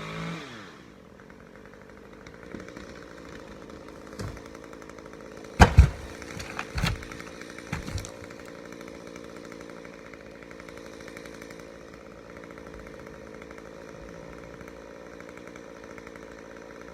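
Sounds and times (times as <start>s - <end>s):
chainsaw running at low revs: 0.0s - 16.9s
heavy thuds of wood hitting ground: 3.9s - 4.7s, 5.5s - 8.6s.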